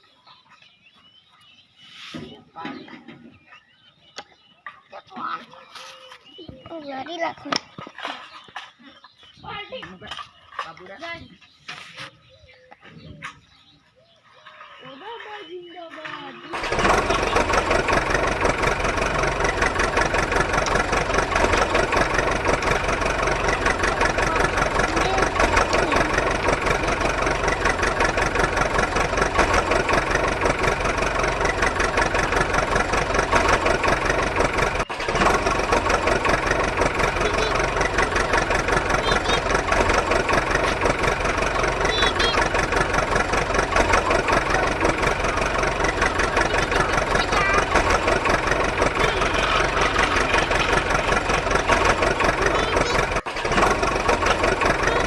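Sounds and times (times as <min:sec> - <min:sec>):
tractor engine running: 0:15.7 - 0:55.0.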